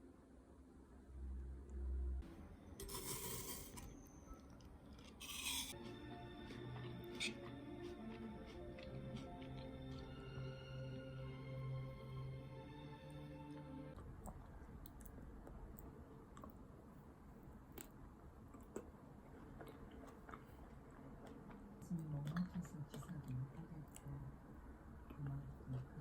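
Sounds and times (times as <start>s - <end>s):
background music: 1.9s - 14.0s.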